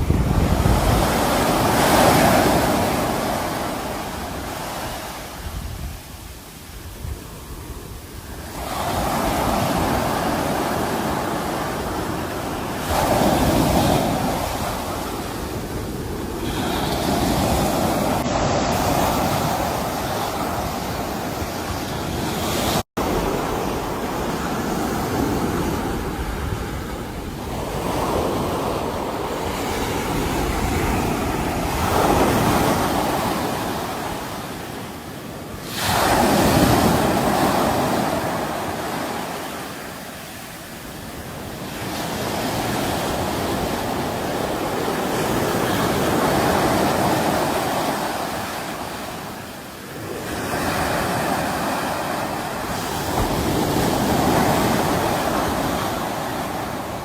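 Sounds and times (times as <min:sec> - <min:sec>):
sea waves breaking on shore: 0:00.0 - 0:57.0.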